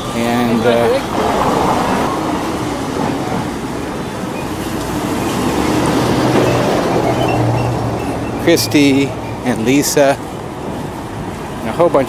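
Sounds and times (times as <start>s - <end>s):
vehicle rumbling: 0.5s - 8.4s.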